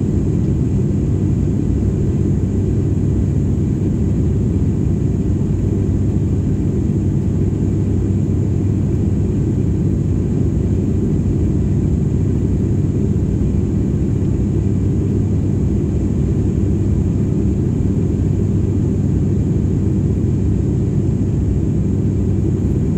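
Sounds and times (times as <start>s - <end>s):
airliner cabin engine drone: 0.0s - 22.9s.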